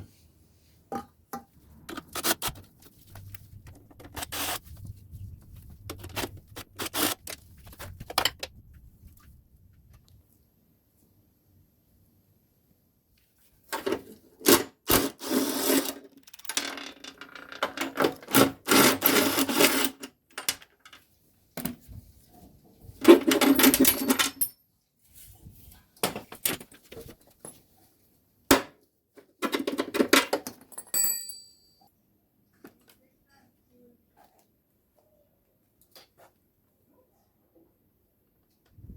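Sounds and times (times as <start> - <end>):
tools clicking and knocking: 0.9 - 4.6, 23.0 - 24.6, 28.5 - 31.5.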